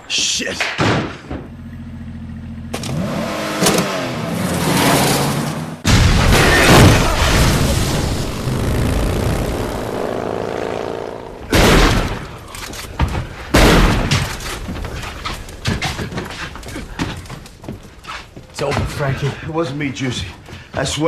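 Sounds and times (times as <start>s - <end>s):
crash and explosion: 5.8s - 9.9s
loud bangs: 5.8s - 16.1s
sharp cracks: 5.9s - 15.9s.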